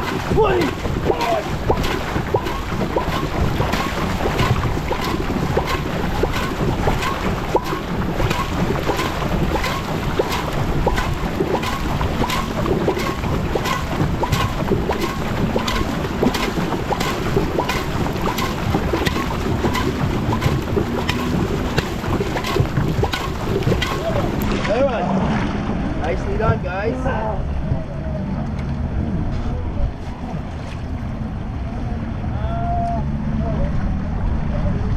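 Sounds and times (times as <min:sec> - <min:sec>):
rigging clicks: 0:00.0 - 0:24.8
water rushing past hull: 0:00.0 - 0:27.8.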